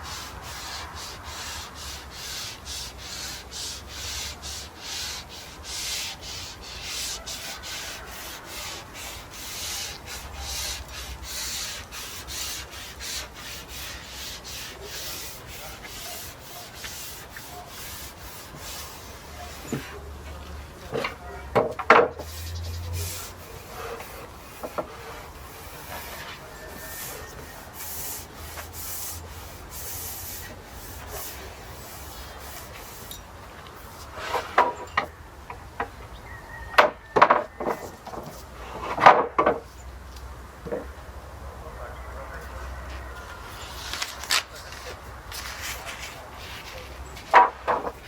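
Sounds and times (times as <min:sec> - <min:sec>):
brush rubbing on wood: 0:00.0 - 0:20.1, 0:22.2 - 0:33.1.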